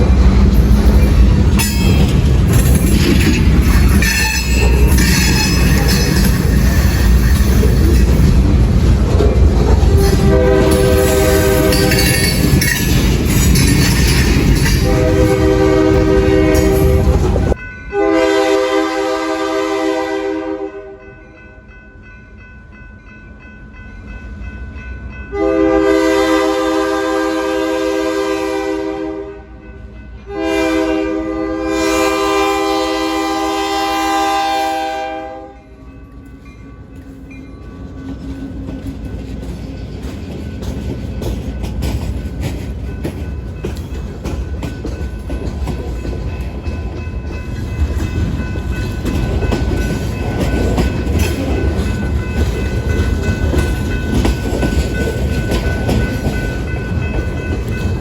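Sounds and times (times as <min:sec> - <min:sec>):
close train noise: 0:00.0 - 0:58.0
train horn blasts: 0:09.8 - 0:12.4, 0:14.7 - 0:21.1, 0:25.3 - 0:35.8.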